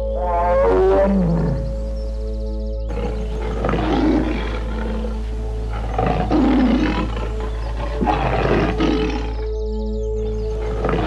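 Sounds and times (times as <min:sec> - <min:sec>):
background music: 0:00.0 - 0:11.0
deep animal roars: 0:02.9 - 0:09.5, 0:10.4 - 0:11.0.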